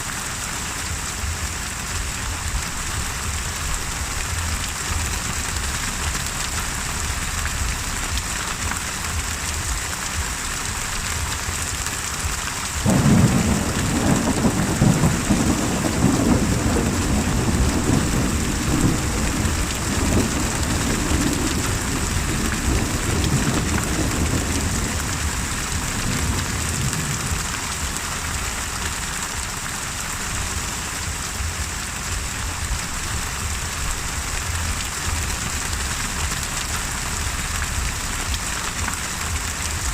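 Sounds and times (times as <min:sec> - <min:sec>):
steady rain falling: 0:00.0 - 0:39.9
rumble of thunder: 0:12.8 - 0:28.4.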